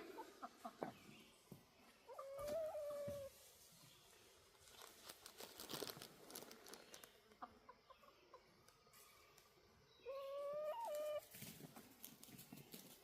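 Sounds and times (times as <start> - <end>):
faint rustling and crackling: 2.4 - 7.4, 10.8 - 13.0
hen calling: 10.0 - 11.4.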